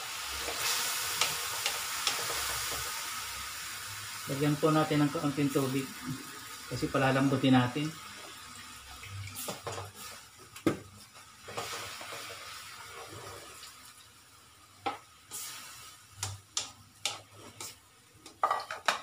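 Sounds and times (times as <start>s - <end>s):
spatula clacking against wok: 16.2s - 19.0s.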